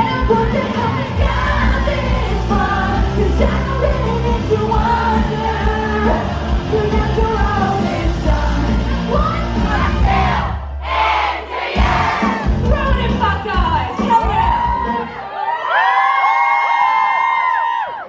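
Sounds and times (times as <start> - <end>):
woman singing: 0.0 - 10.5
band with steady bass line: 0.0 - 15.1.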